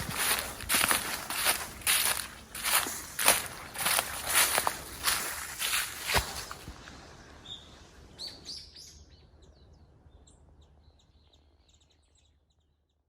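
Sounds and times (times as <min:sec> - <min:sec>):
small birds chirping: 0:00.0 - 0:06.6, 0:07.4 - 0:13.0.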